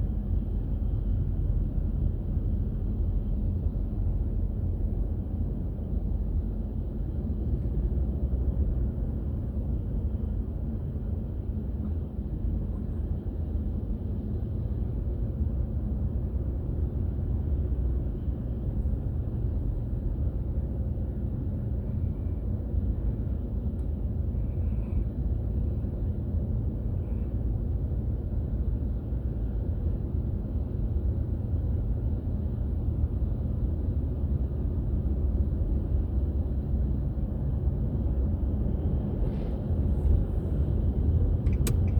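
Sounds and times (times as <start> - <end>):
car engine and road rumble: 0.0 - 41.9.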